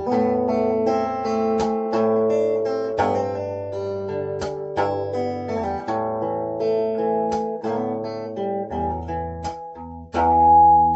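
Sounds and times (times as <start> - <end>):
guitar melody over bass notes: 0.0 - 10.9
strummed guitar chords: 0.0 - 10.9.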